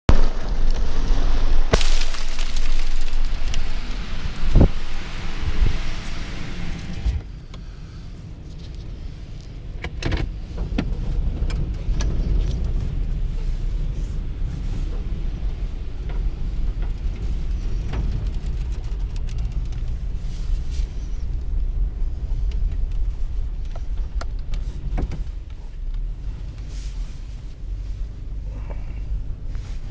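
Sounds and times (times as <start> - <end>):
small rocks striking: 1.6 - 4.8
wind gusts buffeting: 3.1 - 7.3.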